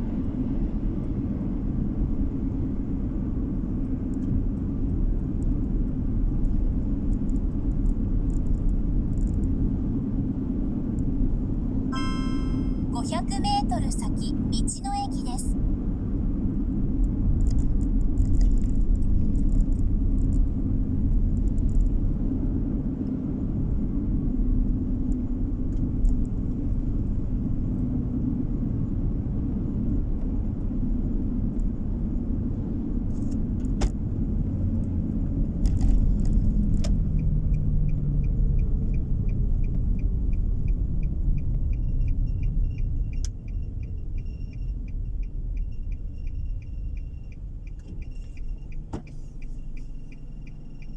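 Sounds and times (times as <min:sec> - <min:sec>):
road and engine rumble: 0:00.0 - 0:50.9
turn signal ticking: 0:33.4 - 0:50.9.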